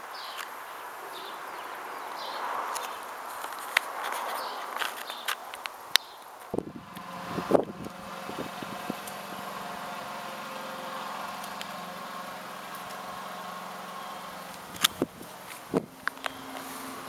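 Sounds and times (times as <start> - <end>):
vehicle engine idling: 6.4 - 17.0.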